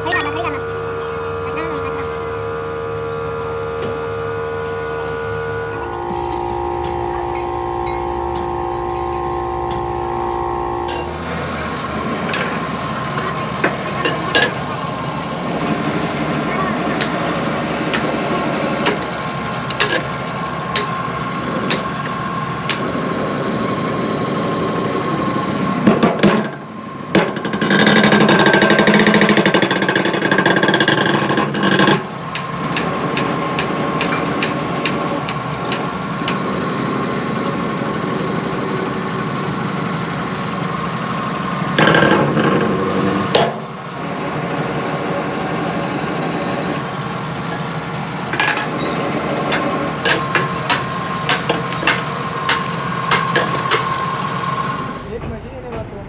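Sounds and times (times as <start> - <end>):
machine hum: 0.0 - 25.4, 41.5 - 56.0
metal tool clicks and knocks: 47.0 - 48.8, 49.4 - 54.1.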